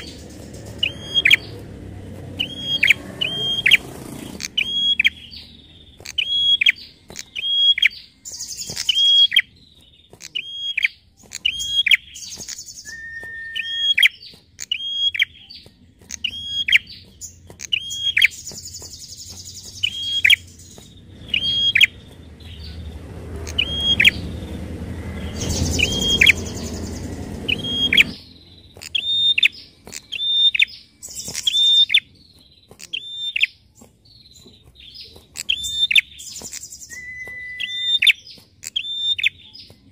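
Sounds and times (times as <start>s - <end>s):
bird calling sharp high notes: 0.0s - 1.6s, 2.4s - 9.6s, 10.2s - 22.8s, 35.3s - 39.4s
low rumble: 20.4s - 28.6s.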